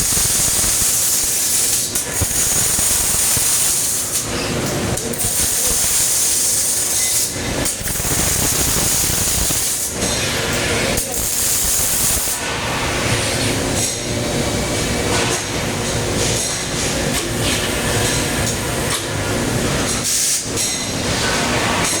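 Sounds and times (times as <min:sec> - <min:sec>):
welding arc crackling: 0:00.0 - 0:04.3, 0:05.1 - 0:10.0, 0:11.0 - 0:12.4.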